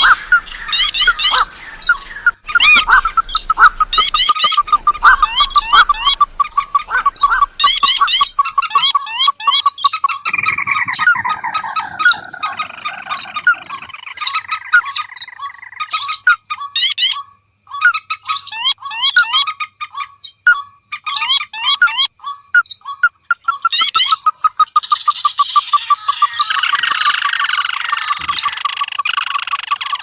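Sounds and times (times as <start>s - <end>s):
bird long falling call: 0.0s - 8.8s, 10.2s - 14.7s
marsh birds calling: 0.0s - 30.0s.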